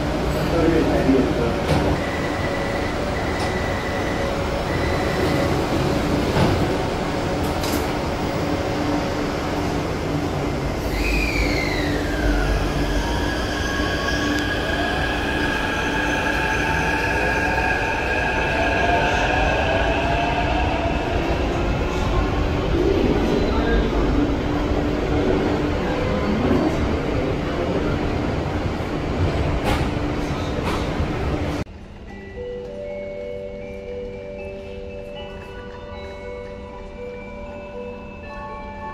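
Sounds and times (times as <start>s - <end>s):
train rumble and whine: 0.0s - 38.9s
high squeal gliding down: 10.6s - 21.5s.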